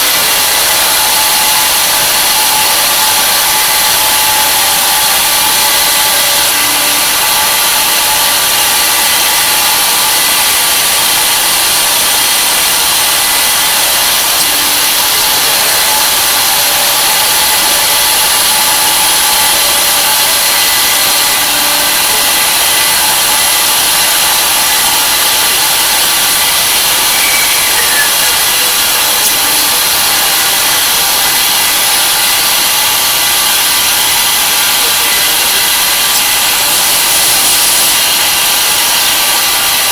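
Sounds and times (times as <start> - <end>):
milling machine cutting metal: 0.0 - 39.9.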